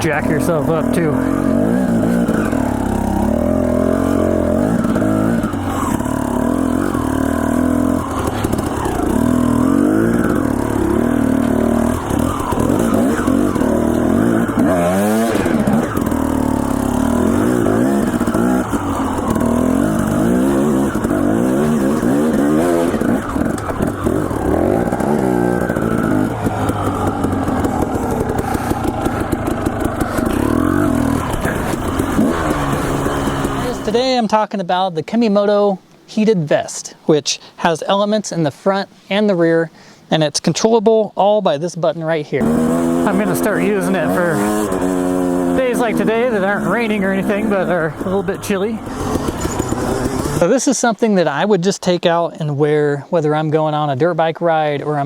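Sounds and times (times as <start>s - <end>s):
dirt bike engine revving: 0.0s - 34.2s, 42.4s - 51.4s.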